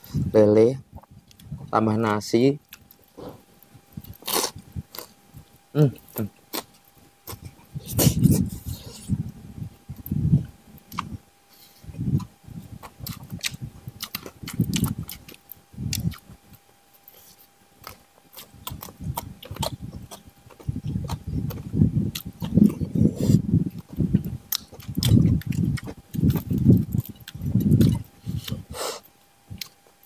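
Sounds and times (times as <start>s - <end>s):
chewing and smacking: 1.0s - 1.8s, 2.6s - 9.3s, 9.9s - 11.2s, 12.0s - 30.0s.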